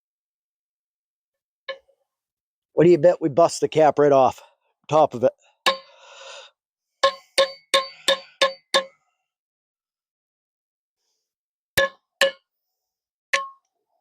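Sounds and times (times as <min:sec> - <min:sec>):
hammer ringing on steel: 0:07.0 - 0:09.0.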